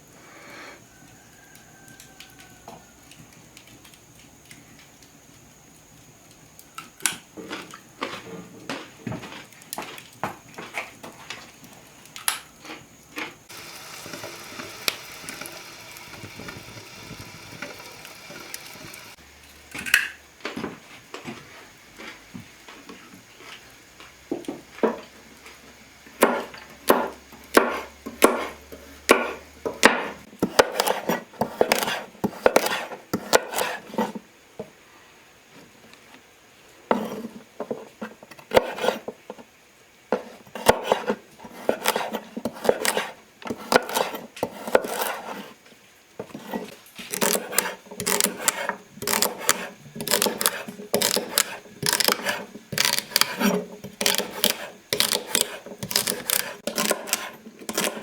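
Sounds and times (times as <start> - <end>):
steady hiss: 13.4 - 19.6
utensils and pots clattering: 13.5 - 19.2.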